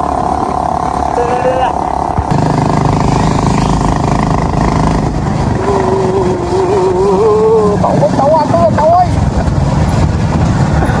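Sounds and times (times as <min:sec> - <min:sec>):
motorcycle engine running: 0:00.0 - 0:11.0
long wavering voice: 0:01.1 - 0:01.8, 0:05.5 - 0:08.1.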